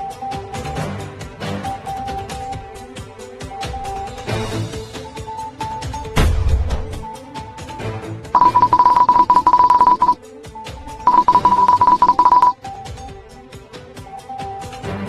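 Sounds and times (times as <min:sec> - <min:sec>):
background music: 0:00.0 - 0:15.0
electronic ringtone trilling: 0:08.4 - 0:10.2, 0:11.1 - 0:12.6.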